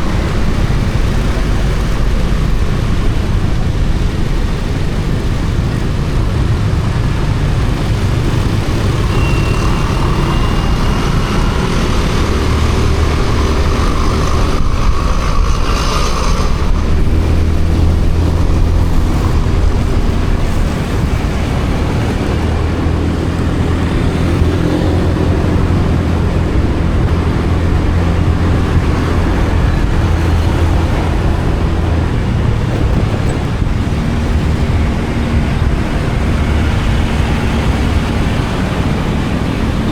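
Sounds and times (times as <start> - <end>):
motorcycle engine running: 0.0 - 39.9
passing traffic: 0.0 - 39.9
wind and road noise: 0.0 - 39.9.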